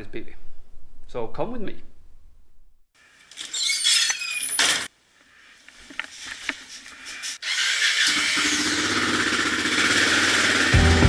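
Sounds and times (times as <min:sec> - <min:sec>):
garage door rolling with squeal: 0:03.3 - 0:04.9
motorcycle engine running: 0:08.0 - 0:11.0.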